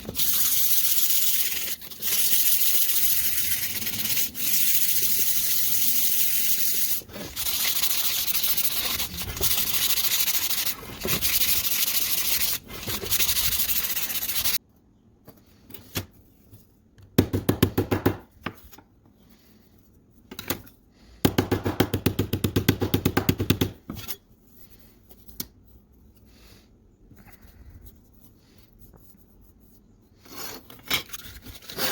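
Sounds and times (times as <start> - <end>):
rapid scratching strokes: 0.0 - 14.6
sanding hiss: 0.0 - 14.6.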